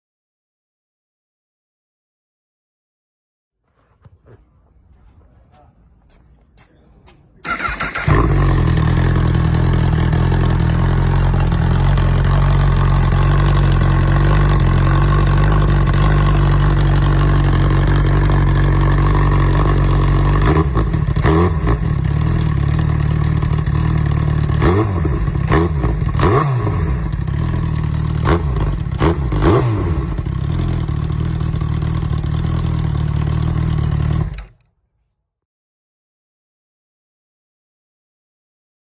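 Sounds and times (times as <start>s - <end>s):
motorcycle engine idling and revving: 7.5s - 34.7s.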